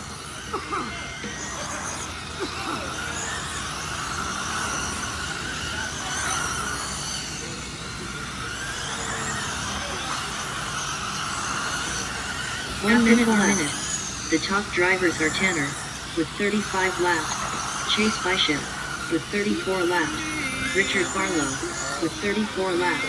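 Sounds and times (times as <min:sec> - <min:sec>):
electric rc car motors whining: 0:00.0 - 0:23.0.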